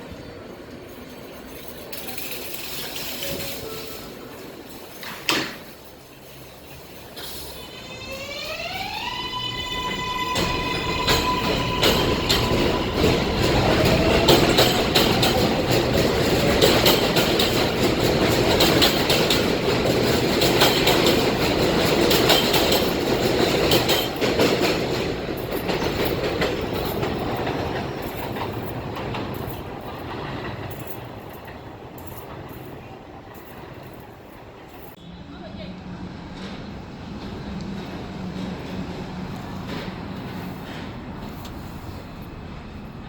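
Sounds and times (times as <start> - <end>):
train wheels clacking over rail joints: 10.1 - 35.0, 36.2 - 42.7.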